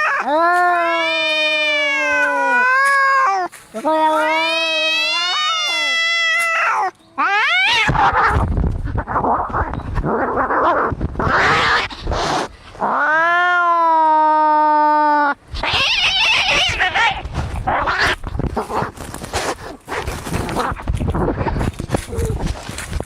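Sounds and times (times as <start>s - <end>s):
cat yowling: 0.0s - 8.4s, 12.9s - 18.2s
cats fighting squalls: 0.0s - 23.0s.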